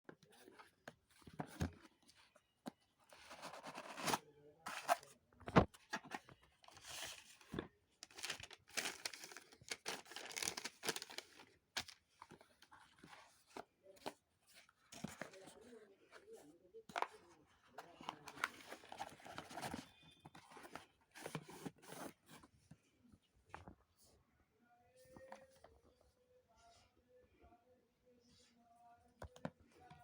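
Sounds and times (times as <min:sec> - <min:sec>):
packaging rustling and ripping: 0:08.0 - 0:12.0.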